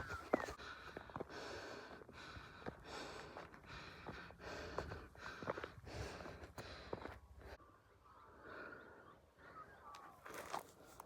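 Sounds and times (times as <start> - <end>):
heavy rhythmic breathing: 0.0 - 7.6.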